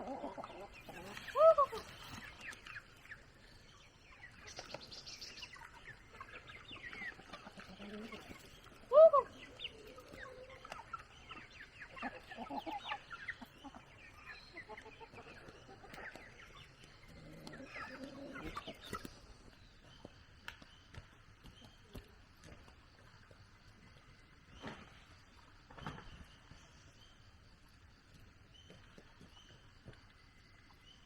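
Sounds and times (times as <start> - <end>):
chickens clucking: 0.0 - 20.1.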